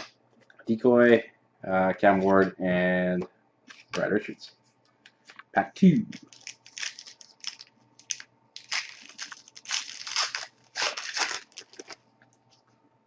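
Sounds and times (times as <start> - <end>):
foil pack tearing and crinkling: 6.1 - 12.0.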